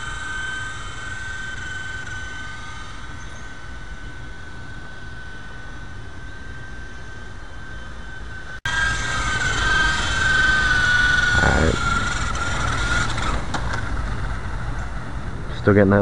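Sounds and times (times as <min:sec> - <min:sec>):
rc helicopter motor whining: 0:00.0 - 0:16.0.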